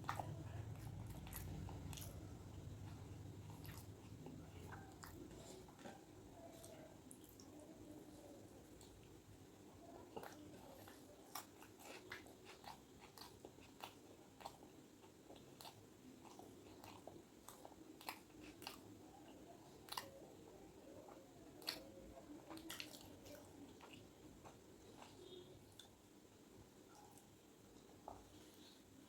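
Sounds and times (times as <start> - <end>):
person chewing crunchy food: 0.0 - 7.5, 9.9 - 20.2, 21.0 - 26.0.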